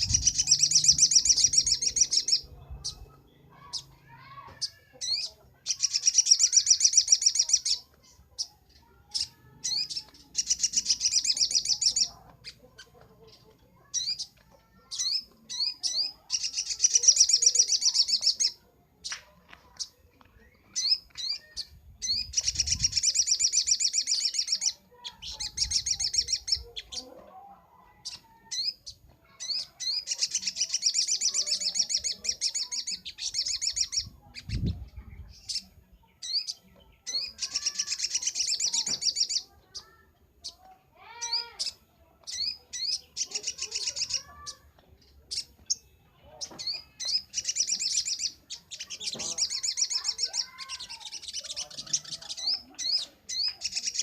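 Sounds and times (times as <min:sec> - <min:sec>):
bird trilling: 0:00.0 - 0:03.0, 0:09.1 - 0:12.9, 0:36.2 - 0:44.7, 0:45.3 - 0:54.0
bird chirps: 0:00.0 - 0:27.1, 0:27.9 - 0:54.0.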